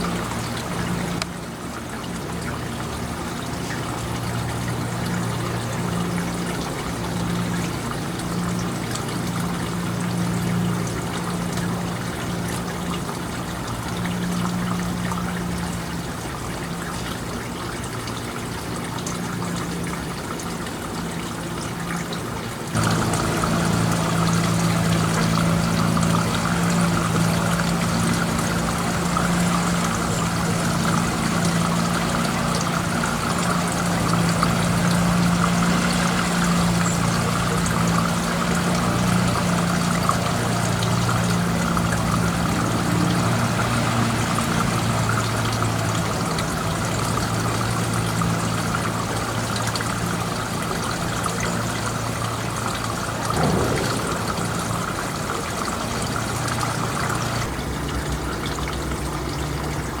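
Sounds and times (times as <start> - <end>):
low hum: 53.3 - 57.5
steady rushing noise: 53.4 - 56.2.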